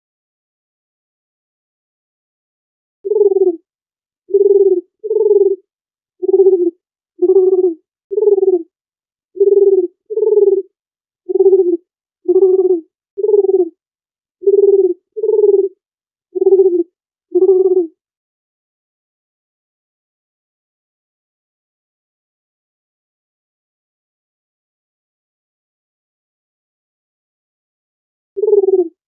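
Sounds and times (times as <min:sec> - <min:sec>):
dove cooing: 0:03.1 - 0:03.6, 0:04.3 - 0:05.6, 0:06.2 - 0:08.7, 0:09.4 - 0:10.7, 0:11.3 - 0:13.8, 0:14.4 - 0:15.8, 0:16.4 - 0:17.9, 0:28.4 - 0:29.0.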